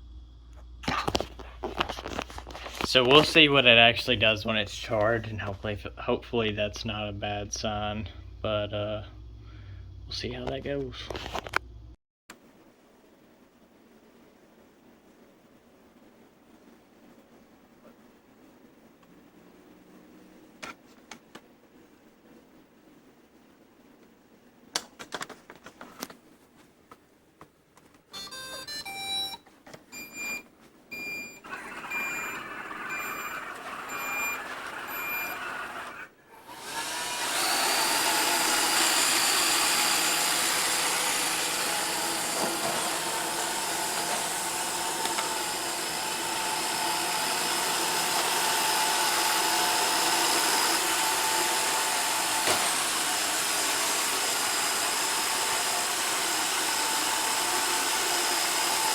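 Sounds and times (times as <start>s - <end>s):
vacuum motors whirring: 31.0s - 58.9s.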